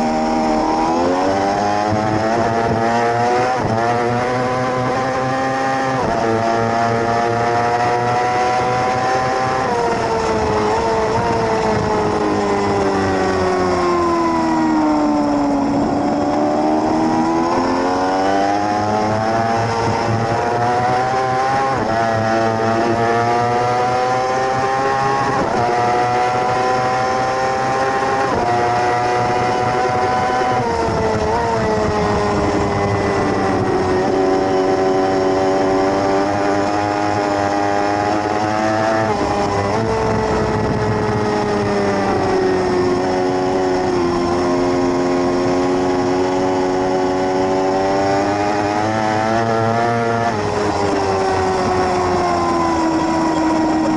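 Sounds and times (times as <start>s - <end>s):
race motorcycle engine revving: 0.0s - 53.9s.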